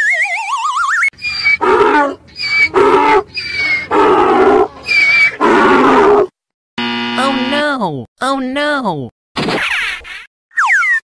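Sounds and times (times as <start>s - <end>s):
donkey braying: 1.2s - 6.3s.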